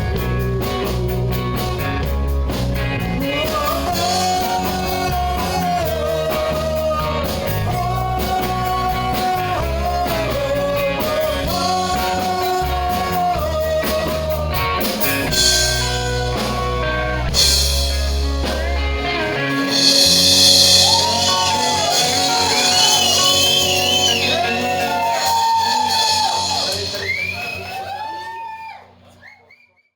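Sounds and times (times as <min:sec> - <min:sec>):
person singing: 0:00.0 - 0:02.1, 0:03.0 - 0:27.3
rock band playing: 0:00.0 - 0:28.4
cymbal wash: 0:19.5 - 0:24.3.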